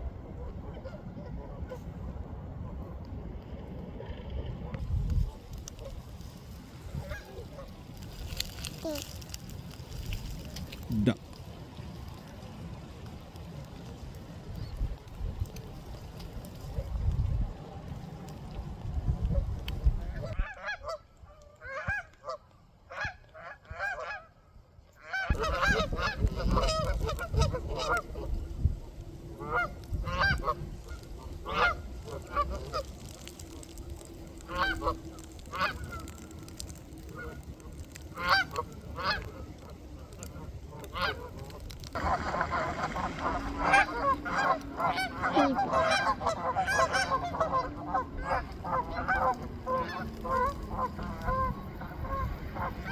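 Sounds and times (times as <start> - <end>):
waterfowl honking and quacking: 0.2 - 2.1, 21.6 - 24.4, 25.0 - 28.4, 29.2 - 52.9.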